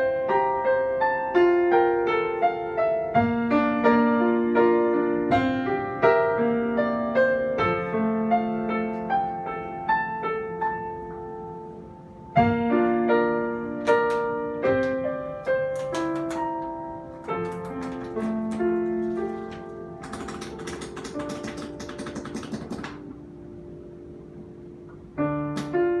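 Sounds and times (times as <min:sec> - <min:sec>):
piano melody over chords: 0:00.0 - 0:26.0
sharp clicks: 0:13.8 - 0:23.0.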